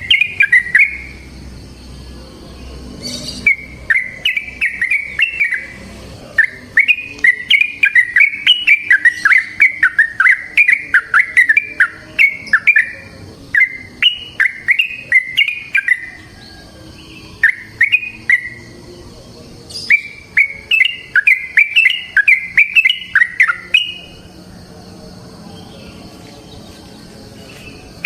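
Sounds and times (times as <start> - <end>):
bird singing fast notes: 0.0 - 1.4, 2.7 - 16.4, 17.1 - 19.0, 19.7 - 24.2.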